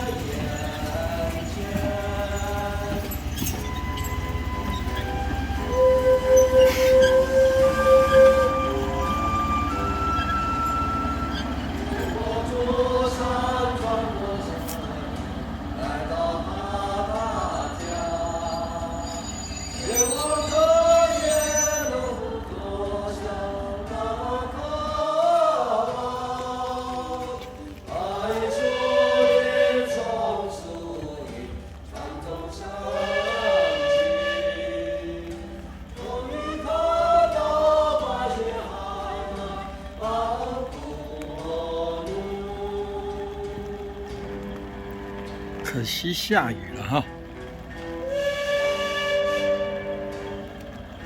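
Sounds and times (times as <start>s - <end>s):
voices singing together: 0.0s - 51.0s
steam locomotive whistle: 3.4s - 12.3s, 17.2s - 22.4s, 28.4s - 30.2s, 32.8s - 37.8s, 46.7s - 51.0s.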